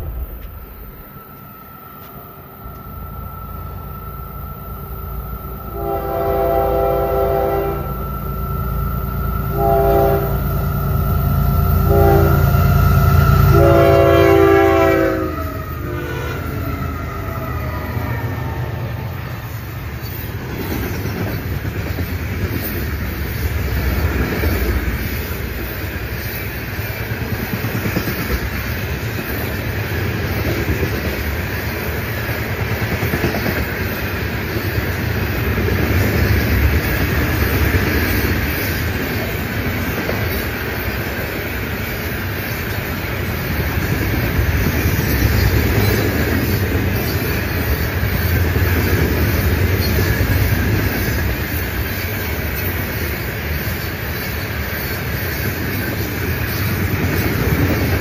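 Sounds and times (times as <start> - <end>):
diesel locomotive engines running: 0.0 - 58.0
freight cars rumbling on rails: 0.0 - 58.0
locomotive horn blasts: 5.6 - 8.1, 9.4 - 10.8, 11.7 - 16.5.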